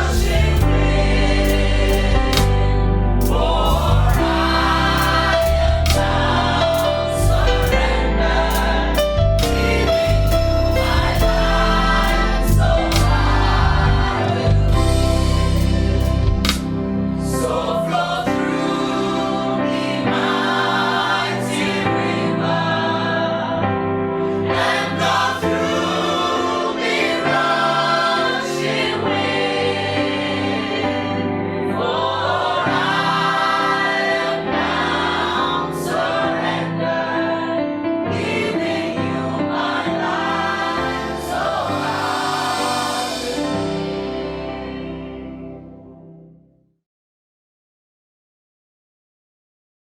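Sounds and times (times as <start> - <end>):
sustained accompanying chords: 0.0 - 20.2
group singing a worship song: 0.0 - 45.6.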